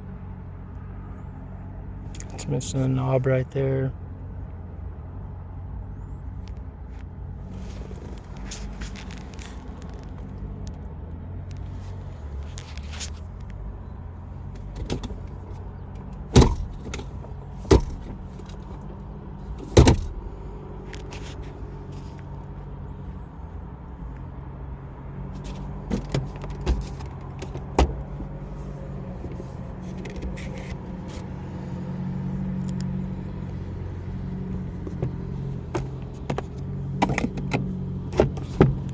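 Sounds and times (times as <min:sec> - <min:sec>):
sharp knocks: 0:17.7 - 0:18.2.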